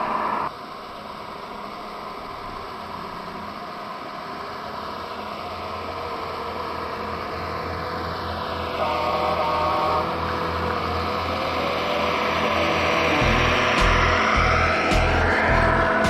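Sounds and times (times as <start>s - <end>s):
simulated engine sound: 0.0s - 16.0s
electric motor hum: 4.4s - 16.0s.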